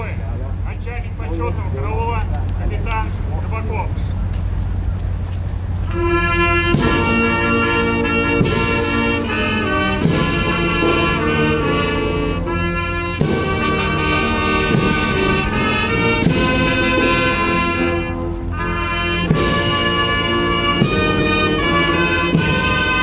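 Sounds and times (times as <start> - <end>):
brass band playing: 5.8 - 23.0
drum and cymbal strikes: 6.0 - 12.5, 13.2 - 17.9, 19.1 - 23.0.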